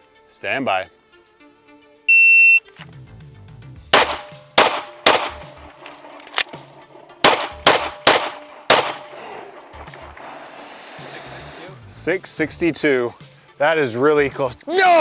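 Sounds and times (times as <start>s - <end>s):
gunshots: 3.9s - 10.3s.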